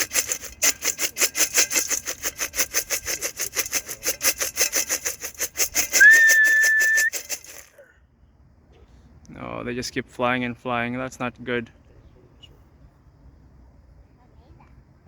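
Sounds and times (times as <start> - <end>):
feed tin rattling: 0.0 - 7.7
whistle: 5.8 - 7.2.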